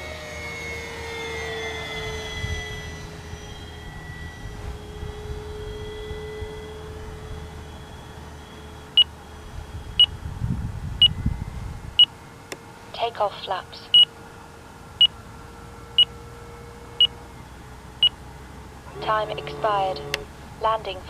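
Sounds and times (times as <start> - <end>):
model plane motor whining: 0.0 - 10.0.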